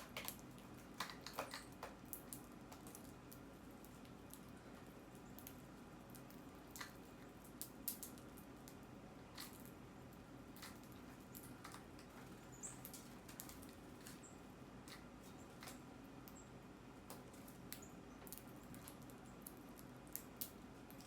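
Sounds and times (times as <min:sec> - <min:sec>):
birds pecking at a feeder: 0:00.0 - 0:21.0.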